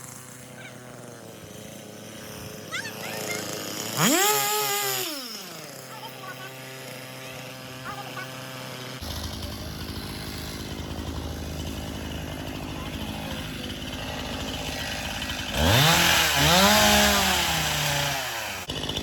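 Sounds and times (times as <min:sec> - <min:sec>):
chainsaw idling and revving: 0:00.0 - 0:19.0.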